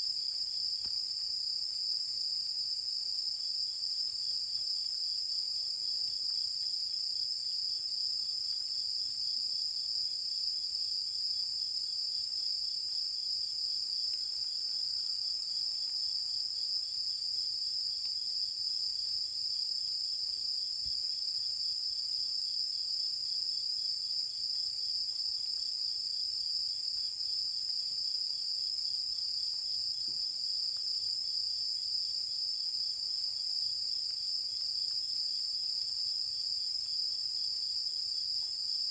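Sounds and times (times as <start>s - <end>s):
rapidly pulsing insect chirp: 0.0s - 38.9s.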